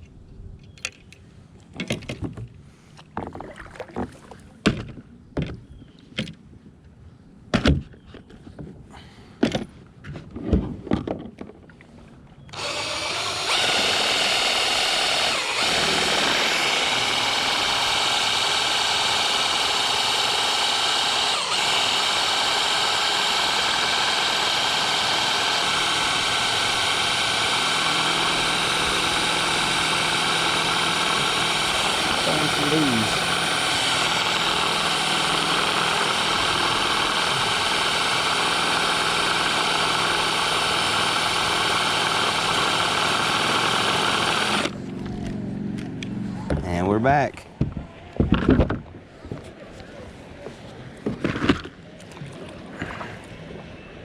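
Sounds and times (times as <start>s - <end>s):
motor running with high whine: 12.5s - 45.9s.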